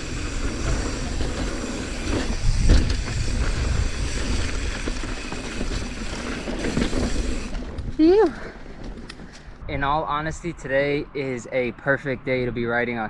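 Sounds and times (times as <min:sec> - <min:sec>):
bike rattles: 0:00.0 - 0:09.6
mountain bike rolling on dirt: 0:00.0 - 0:09.6
wind rushing over microphone: 0:00.0 - 0:11.2.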